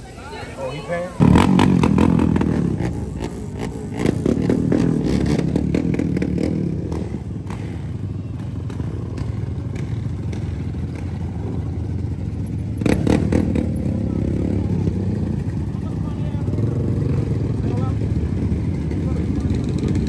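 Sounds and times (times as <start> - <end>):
motorcycle engine rumble: 0.0 - 20.0.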